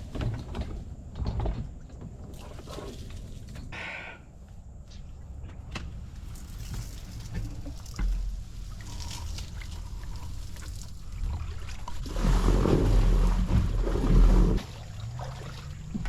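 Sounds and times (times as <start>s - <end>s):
water sloshing around a metal boat: 0.0s - 3.7s, 4.7s - 16.0s
rumbling: 6.0s - 16.0s.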